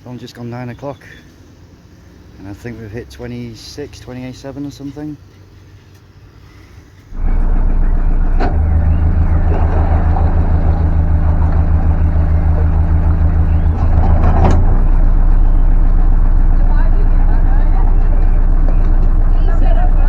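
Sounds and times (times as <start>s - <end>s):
boat engine droning: 7.1s - 20.0s.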